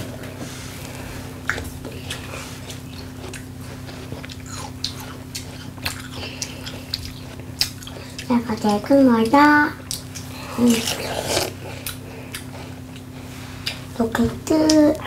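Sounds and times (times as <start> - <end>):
wet chewing of watermelon: 0.0 - 15.0
mouth clicks: 9.8 - 12.5.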